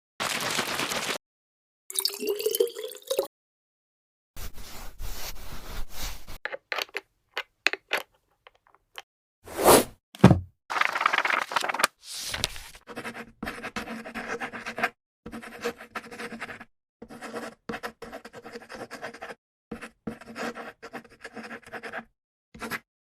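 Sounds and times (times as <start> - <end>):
fountain pen scratching on paper: 12.8 - 22.8.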